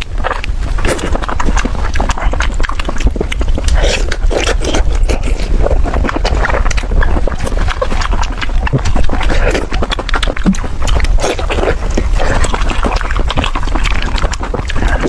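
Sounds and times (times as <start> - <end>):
crunching of bone: 0.0 - 15.0
steady low rumble: 0.0 - 15.0
wet mouth smacking: 0.0 - 15.0.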